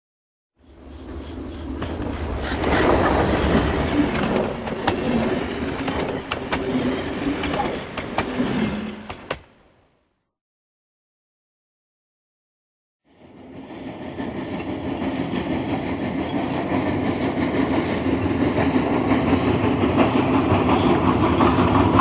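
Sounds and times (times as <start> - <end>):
train rumbling on rails: 0.6 - 9.8, 13.1 - 22.0
wheels clicking over track: 1.6 - 9.4.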